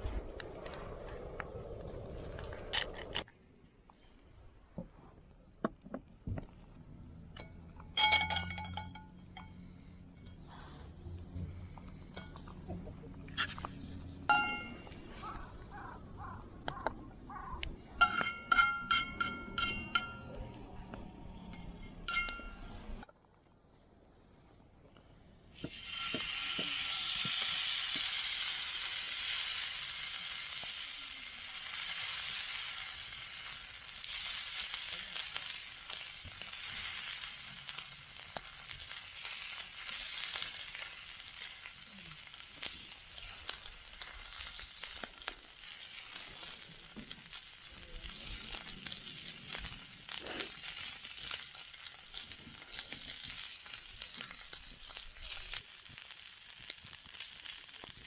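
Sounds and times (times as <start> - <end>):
steak sizzling over fire: 25.5 - 58.0.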